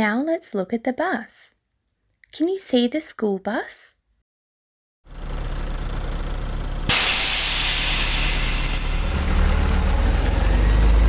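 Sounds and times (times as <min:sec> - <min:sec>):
bus engine running: 0:05.1 - 0:11.0
air brake hiss: 0:06.9 - 0:09.6.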